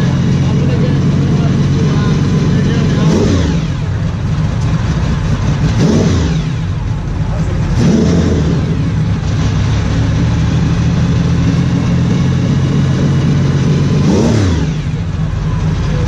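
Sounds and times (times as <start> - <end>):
racing car engine idling: 0.0 - 16.0.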